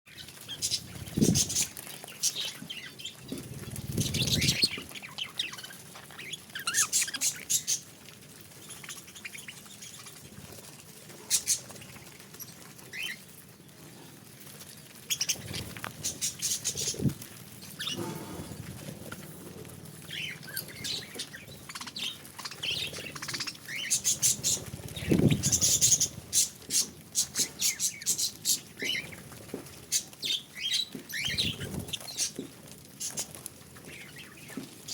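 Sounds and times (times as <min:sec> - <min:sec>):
wings fluttering: 0:00.1 - 0:34.9
budgerigars chirping: 0:20.2 - 0:29.1.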